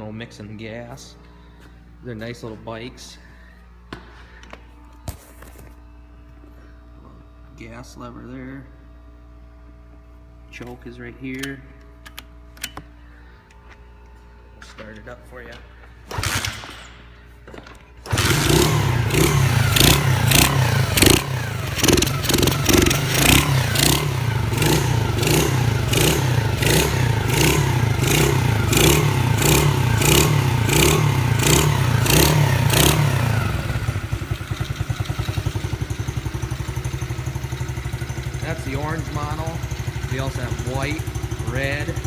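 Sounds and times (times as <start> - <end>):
small motorbike engine revving: 18.0 - 42.0.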